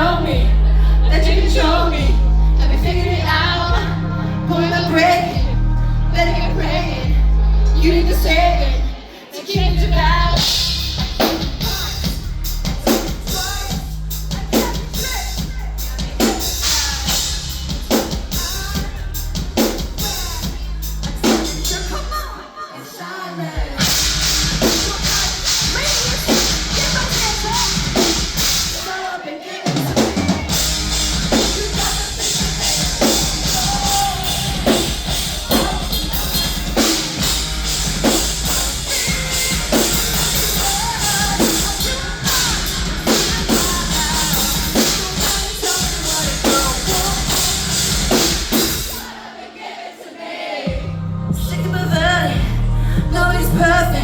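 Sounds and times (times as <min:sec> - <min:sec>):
person singing: 0:00.0 - 0:49.2, 0:50.7 - 0:54.0
drum-kit beat: 0:09.6 - 0:22.4, 0:23.6 - 0:49.4, 0:50.6 - 0:54.0
rock band playing live: 0:09.6 - 0:22.5, 0:23.6 - 0:29.0, 0:29.6 - 0:49.2.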